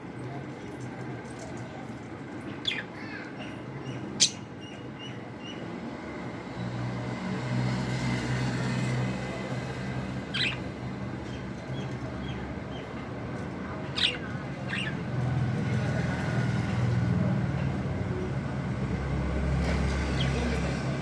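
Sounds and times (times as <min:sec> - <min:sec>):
budgerigars chirping: 0:10.3 - 0:10.7, 0:13.9 - 0:15.0.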